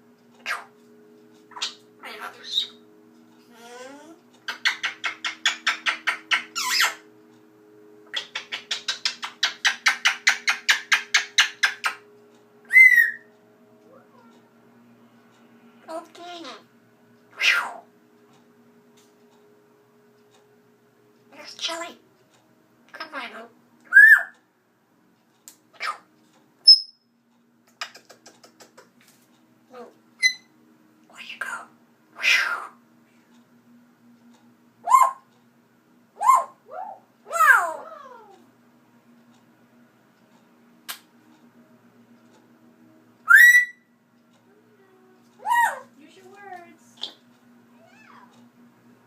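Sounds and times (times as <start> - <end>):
bird chirping: 1.5 - 2.8, 4.4 - 7.1, 12.7 - 13.3, 23.9 - 24.3, 26.6 - 27.1, 30.2 - 30.5, 43.3 - 43.9
pet bird calling: 1.5 - 2.8, 12.7 - 13.3, 30.2 - 30.5, 34.8 - 35.3, 36.2 - 38.3, 43.3 - 43.8, 45.4 - 45.9.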